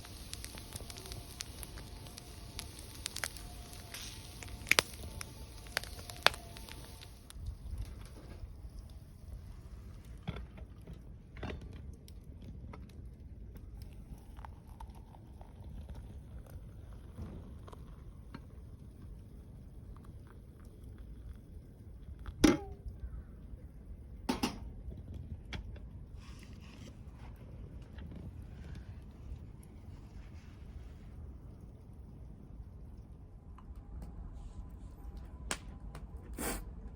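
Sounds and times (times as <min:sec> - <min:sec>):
loud sharp fire snaps: 0:00.0 - 0:09.0, 0:35.2 - 0:36.1
wood fire crackling: 0:00.0 - 0:36.2.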